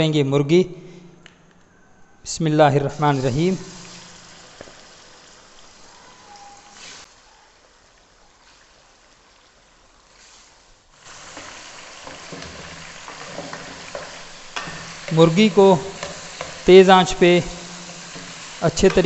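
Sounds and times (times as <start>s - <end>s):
chicken sizzling in oil: 3.1s - 7.2s, 7.8s - 19.0s.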